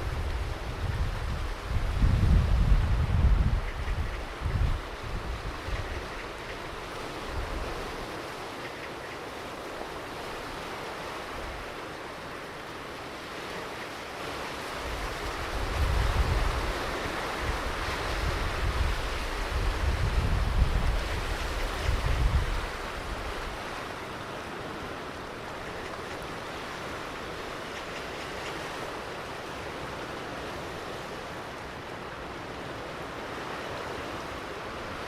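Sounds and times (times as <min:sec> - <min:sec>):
wind buffeting microphone: 0:00.0 - 0:08.5, 0:14.6 - 0:31.1
ocean surf on beach: 0:00.0 - 0:35.0.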